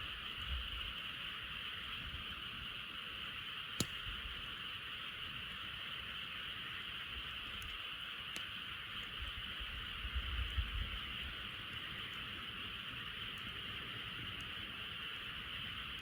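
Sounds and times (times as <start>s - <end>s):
campfire pop: 3.2s - 16.0s.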